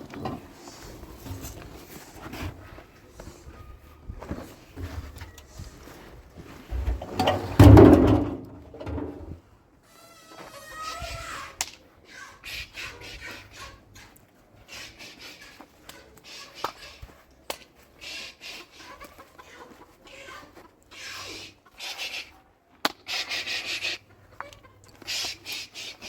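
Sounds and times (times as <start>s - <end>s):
rustling: 0.0s - 9.4s
chickens clucking: 10.4s - 26.0s.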